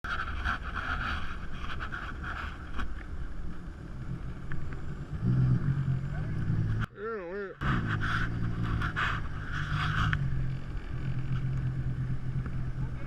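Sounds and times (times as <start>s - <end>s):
jet ski engine: 7.6s - 13.0s.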